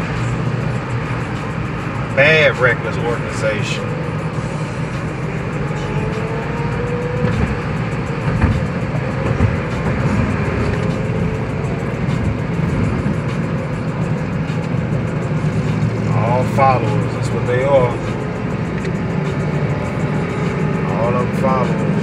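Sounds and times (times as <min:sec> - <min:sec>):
road and engine noise inside car: 0:00.0 - 0:22.0.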